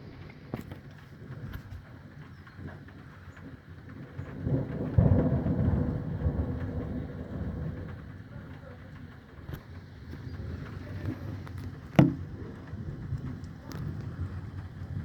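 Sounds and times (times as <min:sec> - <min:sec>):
rain: 0:00.0 - 0:15.0
raindrops ticking: 0:00.2 - 0:15.0
thunder rumbling: 0:03.8 - 0:15.0.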